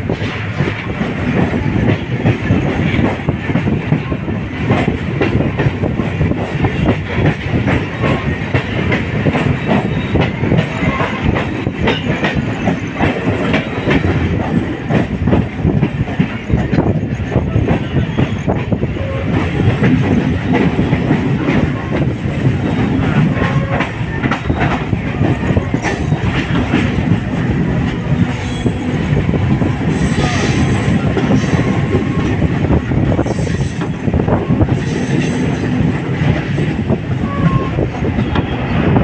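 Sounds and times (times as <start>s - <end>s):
train wheels rumbling and rattling: 0.0s - 39.0s.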